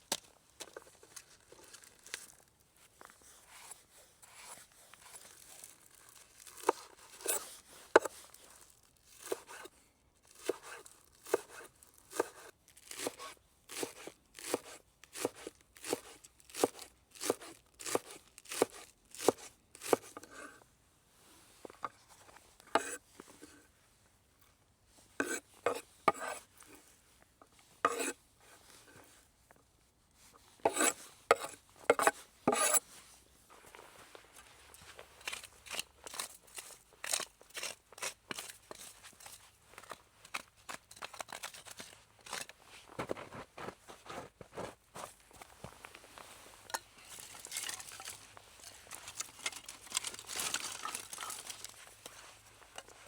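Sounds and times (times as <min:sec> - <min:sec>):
knife chopping on cutting board: 0:30.7 - 0:32.8.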